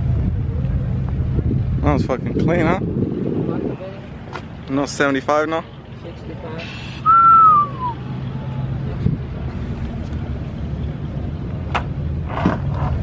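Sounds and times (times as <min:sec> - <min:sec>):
vehicle engine rumble: 0:00.0 - 0:13.0
falling whistle-like tone: 0:07.0 - 0:08.0.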